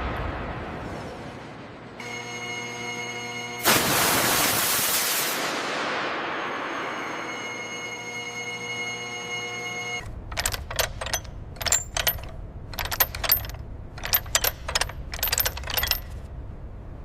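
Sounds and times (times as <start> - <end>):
light metallic clicks and clinks: 10.3 - 16.3.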